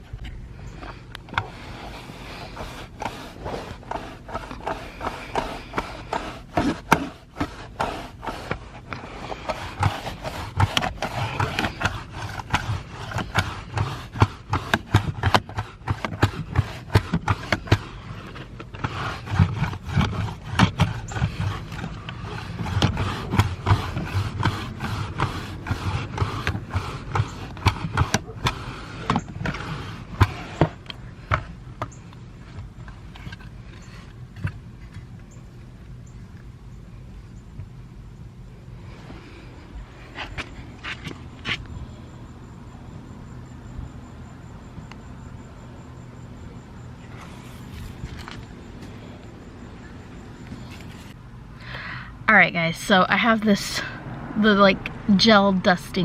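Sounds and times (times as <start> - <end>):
hands cleaning car interior: 0.8 - 31.5.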